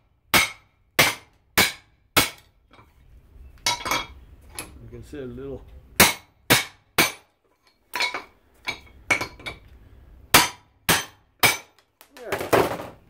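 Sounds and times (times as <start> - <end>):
hammer on metal: 6.0 - 7.2, 10.3 - 11.7.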